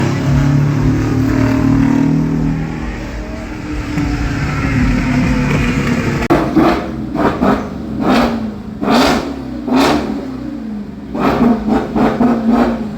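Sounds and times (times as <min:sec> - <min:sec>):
car engine running loudly: 0:00.0 - 0:12.9.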